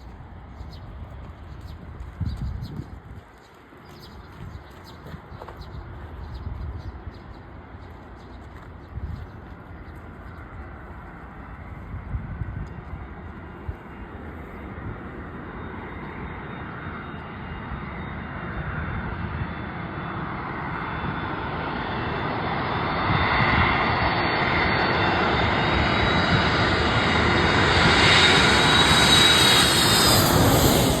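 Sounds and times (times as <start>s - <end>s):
jet airliner flying overhead: 0.0s - 31.0s
high jet whine: 8.7s - 31.0s.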